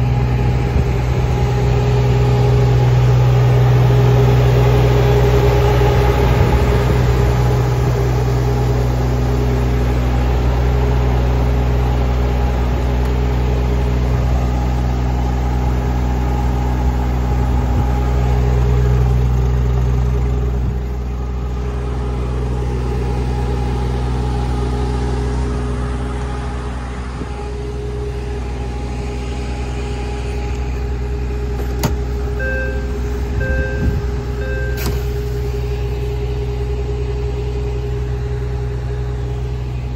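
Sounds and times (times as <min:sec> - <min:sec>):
diesel engine idling: 0:00.0 - 0:39.9
short electronic beeps: 0:32.4 - 0:35.1.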